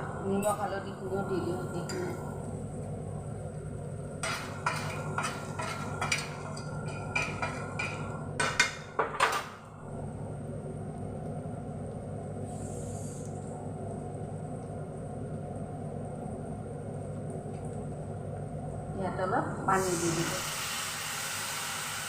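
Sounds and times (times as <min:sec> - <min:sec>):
steady low hum: 0:00.0 - 0:20.5
metal utensil scraping a pan: 0:04.2 - 0:08.0.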